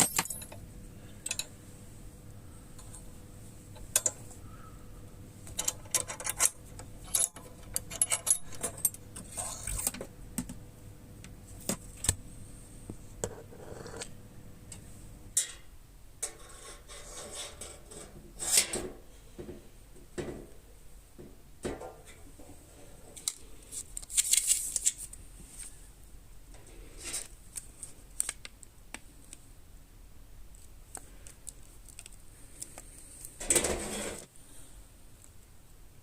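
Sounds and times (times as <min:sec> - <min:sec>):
metal parts clinking: 0:00.0 - 0:00.6, 0:01.2 - 0:01.5, 0:05.5 - 0:09.8.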